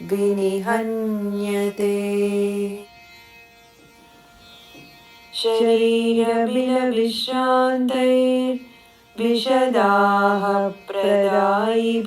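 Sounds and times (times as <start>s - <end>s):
person chanting melodically: 0.0s - 2.9s, 5.3s - 12.0s.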